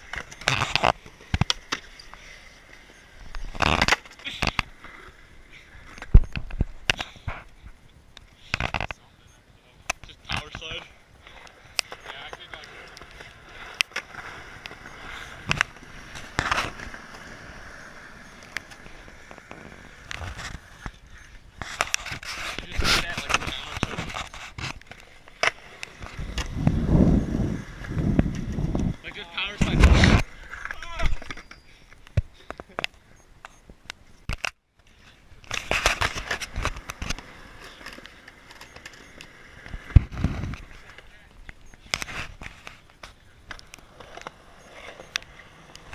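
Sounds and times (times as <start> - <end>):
skateboard wheels rolling on wet pavement: 11.0 - 21.8, 24.8 - 30.8, 36.0 - 41.3.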